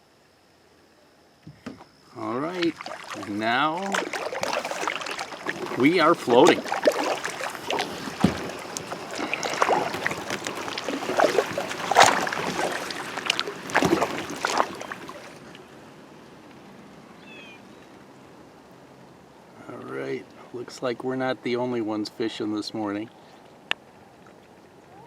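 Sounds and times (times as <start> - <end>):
kayak paddle splashing: 2.2 - 15.8
paddle knocks: 2.6 - 15.4.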